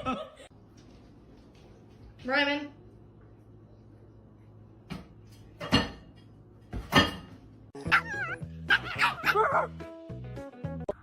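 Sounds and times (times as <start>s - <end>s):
dog whining and yipping: 7.8s - 9.7s
background music: 7.8s - 11.0s
dog barking: 7.9s - 9.7s.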